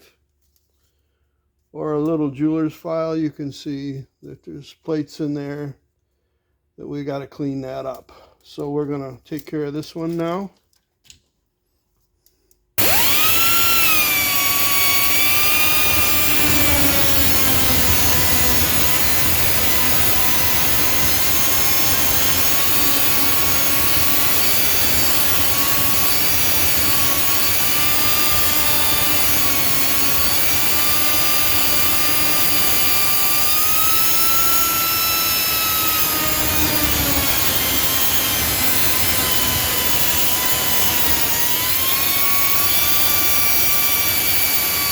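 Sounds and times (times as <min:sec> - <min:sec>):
cut-off wheel tool whining: 0:12.8 - 0:44.9.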